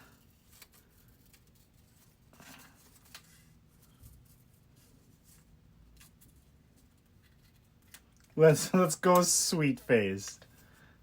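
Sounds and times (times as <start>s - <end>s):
small clicks and rustles: 0.1s - 8.4s.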